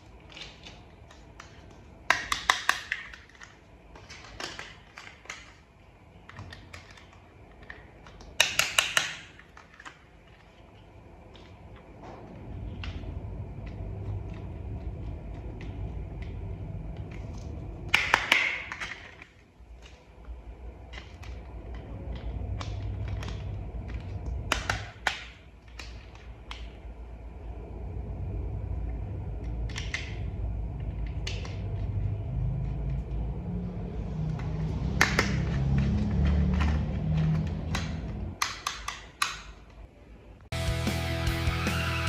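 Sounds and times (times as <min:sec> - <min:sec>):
steady low hum: 0:00.0 - 0:41.9
plastic toy parts clicking: 0:00.2 - 0:11.6, 0:17.1 - 0:20.1, 0:34.4 - 0:39.8.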